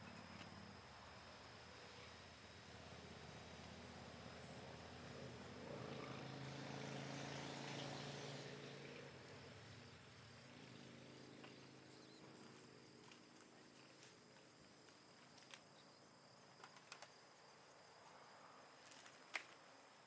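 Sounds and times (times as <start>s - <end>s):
distant engine hum: 0.0s - 14.3s
high insect drone: 0.0s - 20.0s.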